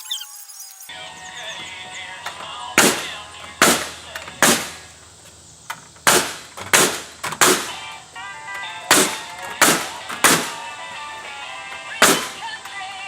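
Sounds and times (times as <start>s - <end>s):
country music from radio: 0.0s - 5.9s, 7.4s - 13.0s
nails hammered into wood: 2.8s - 4.8s, 6.0s - 7.8s, 8.9s - 10.6s, 12.0s - 12.4s.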